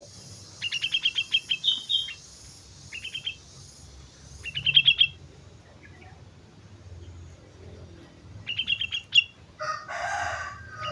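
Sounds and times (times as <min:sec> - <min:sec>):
steady high hiss: 0:00.0 - 0:05.9
bird chirping song: 0:00.0 - 0:09.4, 0:10.7 - 0:10.9.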